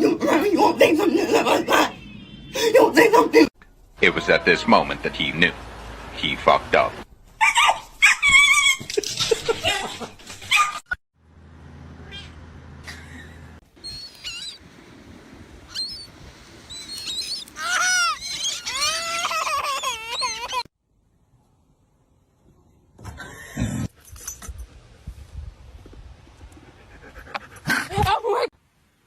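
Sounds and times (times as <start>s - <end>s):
animal calls rising and falling: 13.8s - 14.7s, 15.6s - 20.7s.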